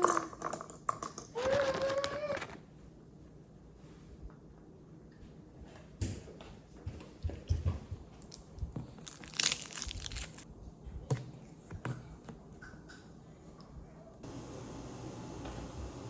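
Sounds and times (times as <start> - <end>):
packaging crinkling and tearing: 8.3 - 10.5.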